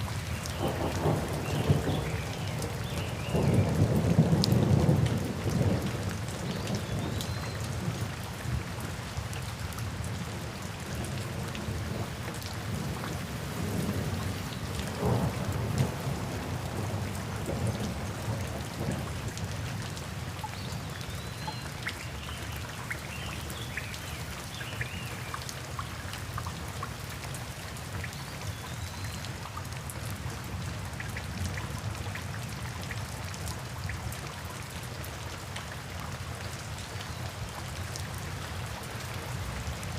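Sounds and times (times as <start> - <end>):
steady rain: 0.0 - 39.9
low rolling thunder: 14.9 - 19.2.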